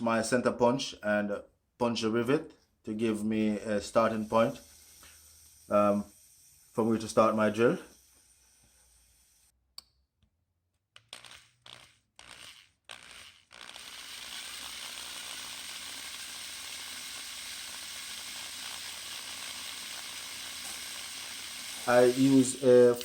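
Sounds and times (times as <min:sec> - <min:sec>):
drill whirring: 0:03.5 - 0:09.6, 0:11.0 - 0:23.0.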